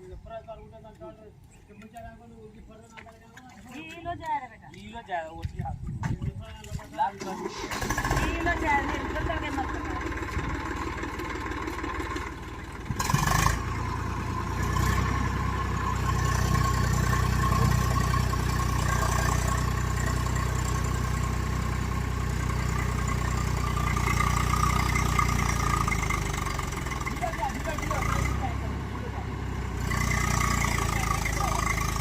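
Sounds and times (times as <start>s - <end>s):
tractor diesel engine running: 7.2s - 32.0s.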